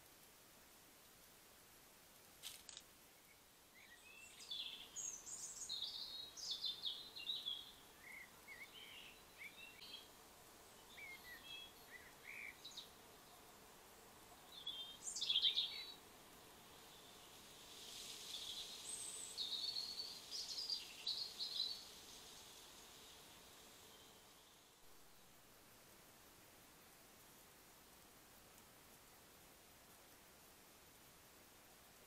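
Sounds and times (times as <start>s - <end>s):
songbird twittering: 3.2s - 10.1s, 10.8s - 13.0s, 14.4s - 16.0s, 18.2s - 23.2s.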